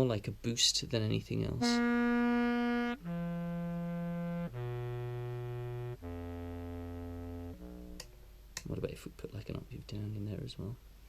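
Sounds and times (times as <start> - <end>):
contrabass clarinet notes: 1.6 - 8.4.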